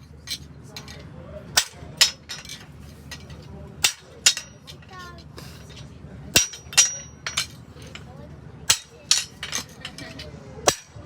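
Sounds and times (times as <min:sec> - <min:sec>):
hammer striking steel on anvil: 0:01.6 - 0:04.9, 0:06.4 - 0:08.0, 0:08.7 - 0:11.0.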